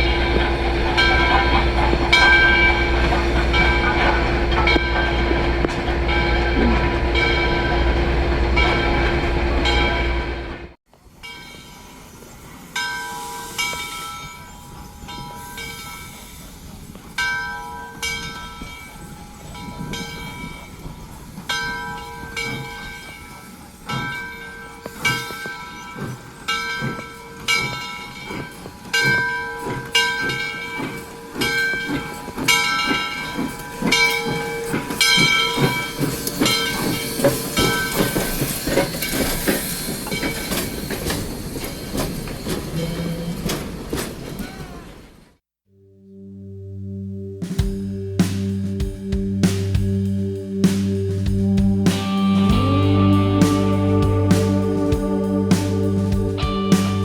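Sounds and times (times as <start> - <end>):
rhythmic beat of moving train: 0.0 - 10.8, 12.8 - 44.8, 47.4 - 57.0
locomotive bell clanging: 0.0 - 44.8.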